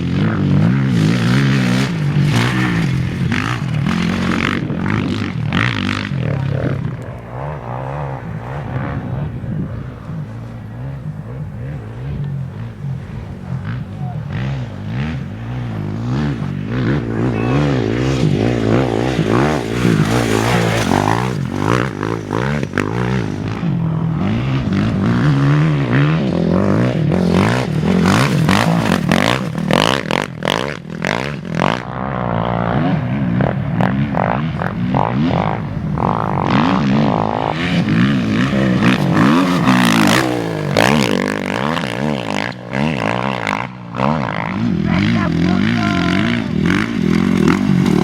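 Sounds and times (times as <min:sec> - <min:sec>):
motorcycle and quad engines revving: 0:00.0 - 0:48.0
sharp engine crackles: 0:00.0 - 0:48.0.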